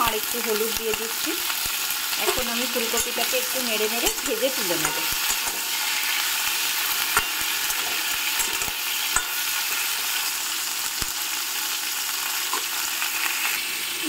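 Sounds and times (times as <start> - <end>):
vegetables sizzling in hot oil: 0.0 - 14.0
metal spatula clicking on pan: 2.2 - 3.3, 4.0 - 5.6, 8.4 - 9.4.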